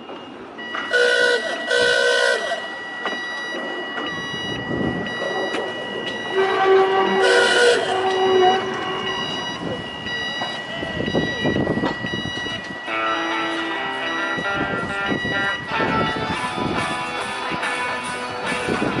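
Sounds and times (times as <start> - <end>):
railway car horn: 0.9 - 2.7, 6.2 - 9.4.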